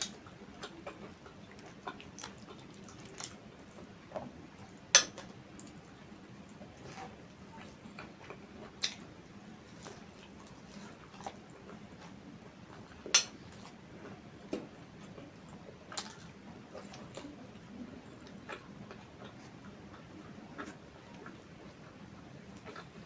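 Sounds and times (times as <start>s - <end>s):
person chewing food: 0.0s - 23.0s
clicks and smacks: 5.0s - 5.8s, 13.1s - 13.8s.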